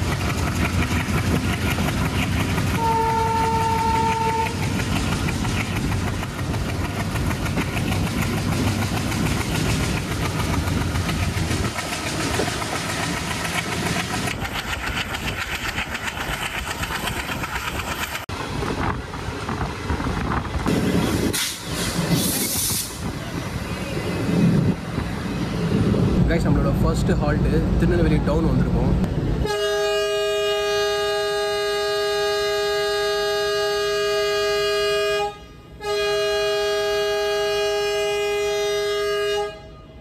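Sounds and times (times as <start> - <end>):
train rumble and wheel clatter: 0.0 - 40.0
train horn note: 2.7 - 4.6, 29.4 - 40.0.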